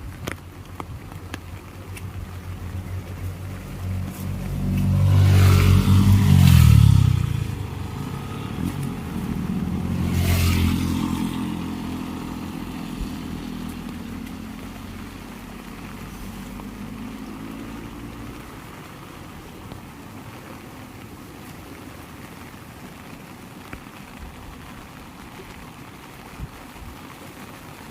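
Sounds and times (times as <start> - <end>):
heavy rain: 0.0 - 27.9
vehicle driving past: 2.5 - 18.8.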